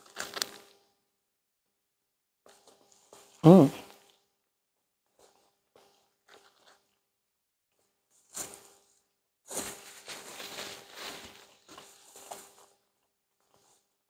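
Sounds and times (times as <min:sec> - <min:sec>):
paper napkin rustling: 0:09.5 - 0:12.8.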